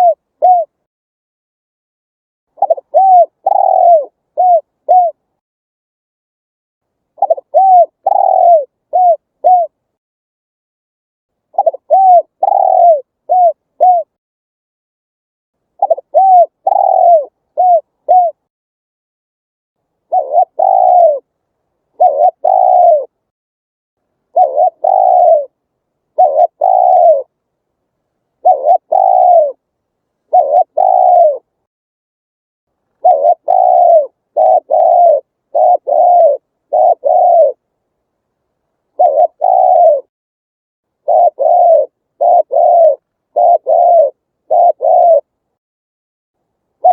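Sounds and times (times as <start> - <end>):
dove cooing: 0.0 - 0.8, 2.6 - 5.3, 7.2 - 9.8, 11.5 - 14.2, 15.8 - 18.5, 20.0 - 21.3, 21.9 - 23.2, 24.3 - 27.4, 28.4 - 29.6, 30.3 - 31.5, 33.0 - 37.7, 38.9 - 40.1, 41.0 - 45.4.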